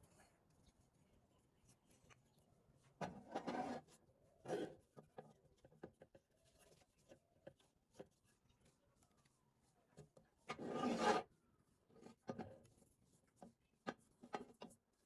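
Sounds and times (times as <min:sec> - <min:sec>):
short rubbing scrapes: 0:03.2 - 0:04.7, 0:10.6 - 0:11.3.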